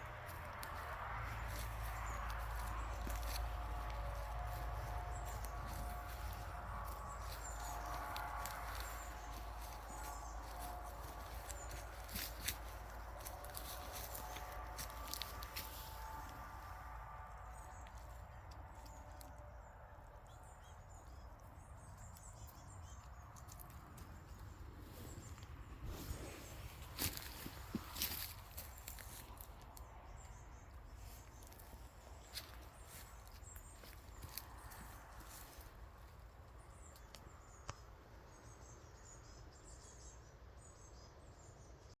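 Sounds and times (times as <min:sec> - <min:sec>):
rustling in leaves: 0:00.0 - 0:16.9, 0:23.5 - 0:29.7
low rumble: 0:00.0 - 0:22.1
faint songbird chirps: 0:20.2 - 0:42.0.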